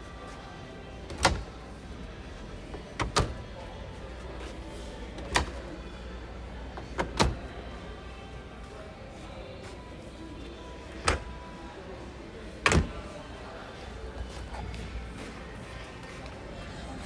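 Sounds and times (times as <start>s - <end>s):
washing machine door banging shut: 12.6s - 13.0s.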